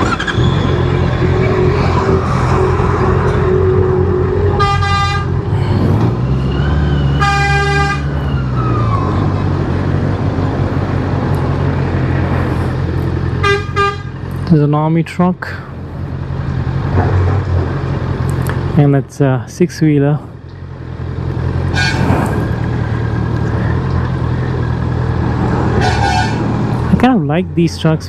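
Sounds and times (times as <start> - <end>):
vehicle horn: 0.4 - 5.5, 7.0 - 8.2, 13.4 - 14.2, 21.7 - 22.1, 25.8 - 26.5.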